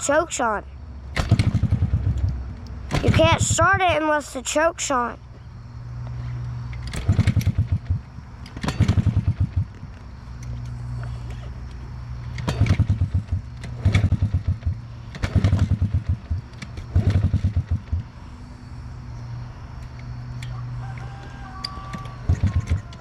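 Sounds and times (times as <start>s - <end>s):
small engine kick start chuffs: 1.1s - 4.0s, 6.7s - 9.8s, 12.2s - 18.7s, 21.7s - 23.0s.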